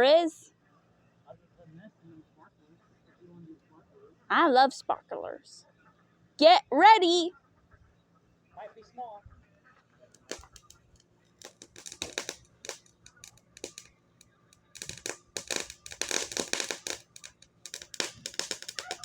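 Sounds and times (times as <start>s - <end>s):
fireworks crackling: 10.2s - 13.9s, 14.6s - 19.0s.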